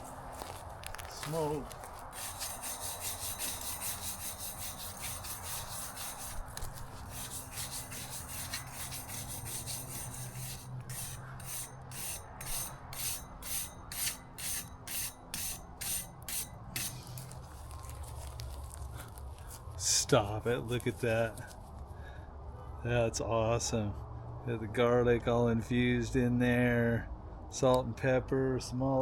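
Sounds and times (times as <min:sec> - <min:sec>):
wire brush scrubbing grill grate: 0:00.0 - 0:17.6.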